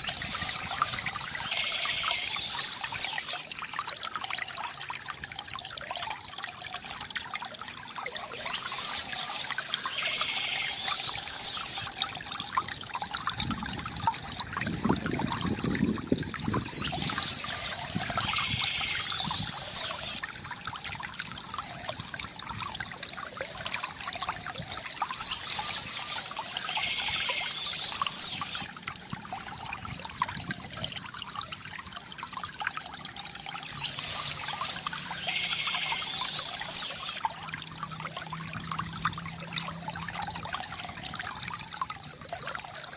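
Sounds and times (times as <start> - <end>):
birdsong: 0.0 - 3.4, 8.2 - 11.9, 16.5 - 20.2, 24.9 - 28.7, 33.6 - 37.2
stream trickling over stones: 0.0 - 42.9.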